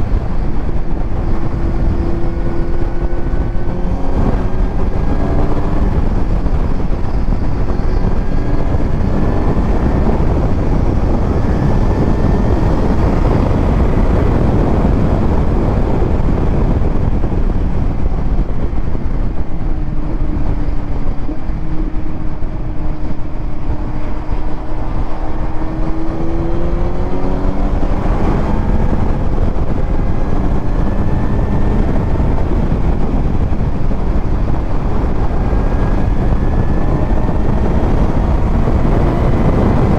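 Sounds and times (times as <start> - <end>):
motorcycle engine revving: 0.0 - 39.9
wind rush on microphone: 0.0 - 39.9.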